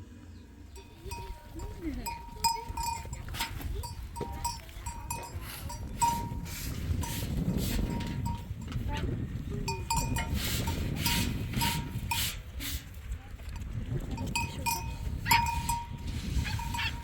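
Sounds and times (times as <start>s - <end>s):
livestock bells ringing: 0.7s - 8.9s, 9.6s - 12.2s, 14.2s - 17.0s.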